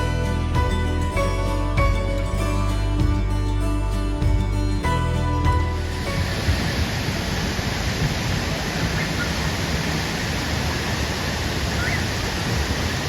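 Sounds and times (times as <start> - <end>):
waterfall rushing: 5.8 - 13.0.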